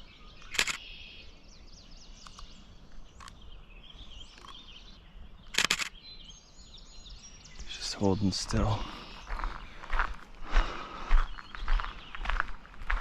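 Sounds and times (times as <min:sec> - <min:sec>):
birds singing and chirping: 0:00.0 - 0:13.0
loud clicking bursts: 0:00.4 - 0:00.8, 0:05.5 - 0:06.0.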